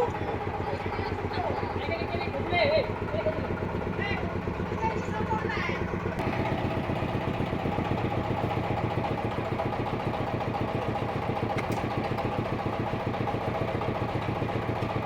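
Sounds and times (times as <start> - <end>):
sawmill engine idling: 0.0 - 15.0.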